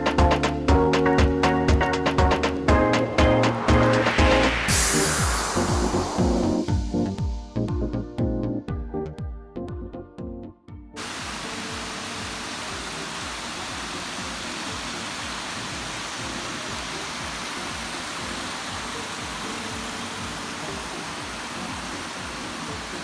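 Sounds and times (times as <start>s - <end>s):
mountain stream rushing: 2.0s - 6.2s, 11.0s - 23.0s.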